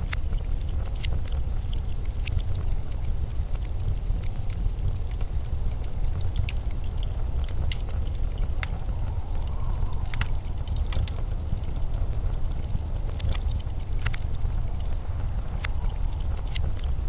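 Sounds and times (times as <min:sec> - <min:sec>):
blizzard wind rumbling: 0:00.0 - 0:17.0
sharp ticks and pops: 0:00.0 - 0:17.0
faint wind whistle: 0:07.2 - 0:17.0.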